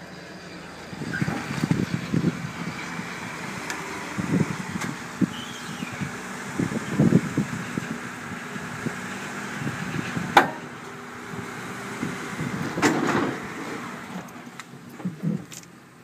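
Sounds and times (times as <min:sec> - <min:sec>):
car engine idling: 0:00.0 - 0:16.0
loud clunk: 0:10.4 - 0:10.7, 0:12.8 - 0:13.4.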